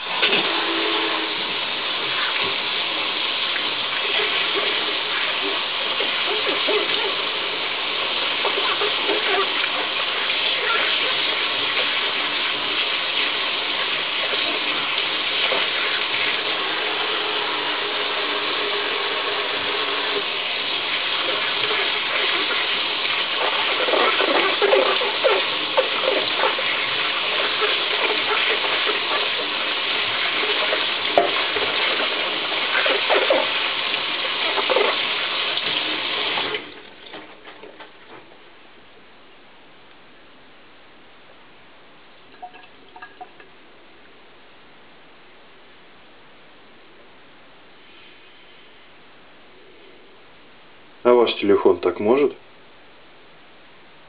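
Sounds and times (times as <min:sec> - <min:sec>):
water running from tap: 0:00.0 - 0:38.2, 0:42.3 - 0:43.6.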